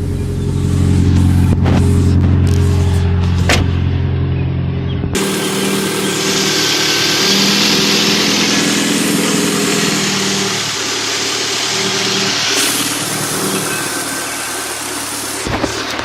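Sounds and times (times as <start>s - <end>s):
car engine idling: 0.0s - 16.0s
hiss: 5.2s - 16.0s.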